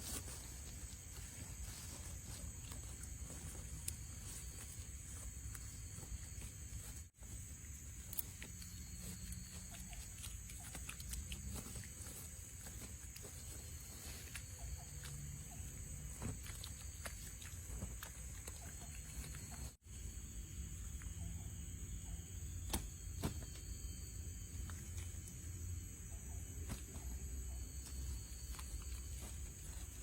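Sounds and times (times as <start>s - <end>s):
forest insects droning: 0.0s - 30.0s.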